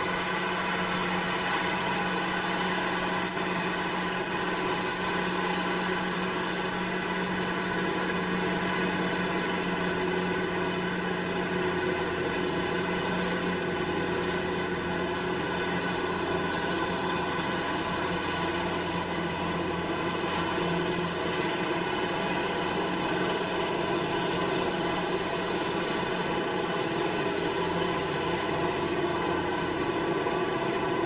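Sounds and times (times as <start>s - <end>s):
machinery engine droning: 0.0s - 31.0s.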